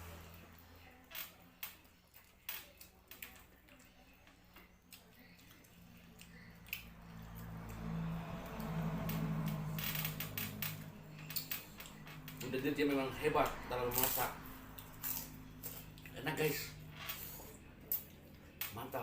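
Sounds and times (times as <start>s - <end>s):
low steady hum: 0.0s - 19.0s
person chewing wetly: 2.0s - 9.6s, 13.9s - 16.2s.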